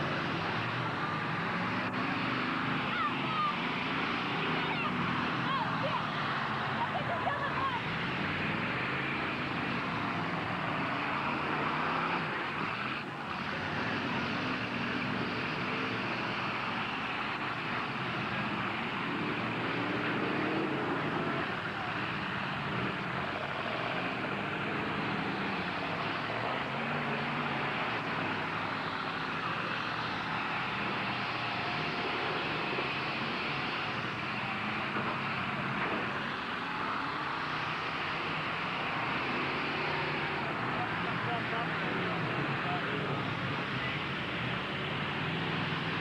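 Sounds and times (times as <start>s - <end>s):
truck engines revving: 0.0s - 46.0s.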